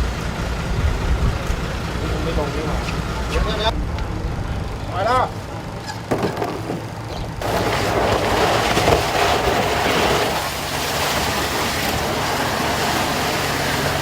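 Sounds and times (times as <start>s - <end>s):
low engine hum: 0.0s - 14.0s
rushing splashing water: 7.4s - 14.0s.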